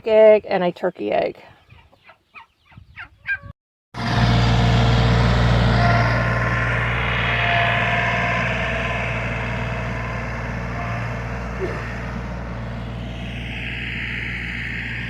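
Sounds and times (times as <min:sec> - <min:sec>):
clucks: 0:01.7 - 0:03.5
heavy engine humming: 0:04.0 - 0:15.0.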